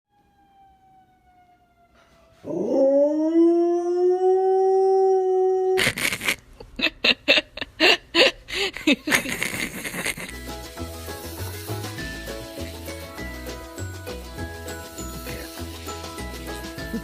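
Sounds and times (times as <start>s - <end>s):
dog howling: 2.4s - 5.8s
music with a beat: 10.3s - 17.0s.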